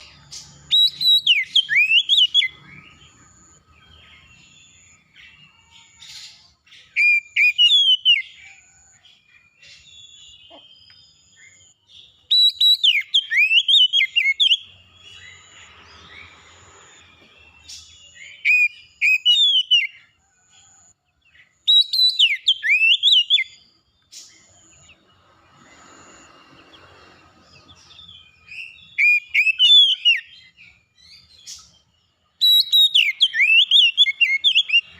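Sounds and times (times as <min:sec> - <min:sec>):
songbird singing whistled phrases: 0:00.0 - 0:08.4, 0:09.6 - 0:16.4, 0:17.5 - 0:20.1, 0:21.6 - 0:24.9, 0:27.9 - 0:31.8, 0:32.4 - 0:34.9.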